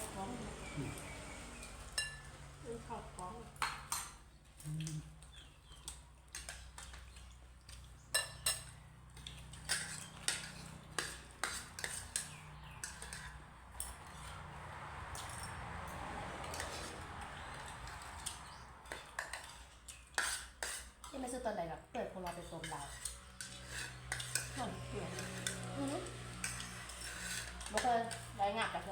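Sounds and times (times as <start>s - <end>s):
cutlery clinking against plate: 1.8s - 2.3s, 6.3s - 14.4s, 17.6s - 21.1s, 22.3s - 25.7s.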